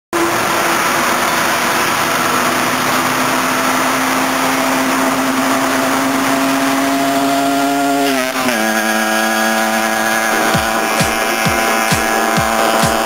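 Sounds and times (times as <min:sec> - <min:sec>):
two-stroke engine at high revs: 0:00.1 - 0:13.0.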